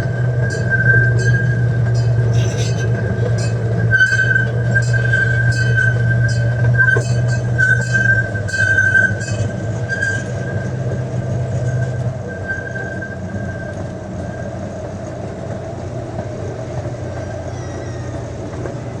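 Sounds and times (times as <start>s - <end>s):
miniature train low hum: 0.0s - 19.0s
thin high squeal: 0.5s - 10.4s.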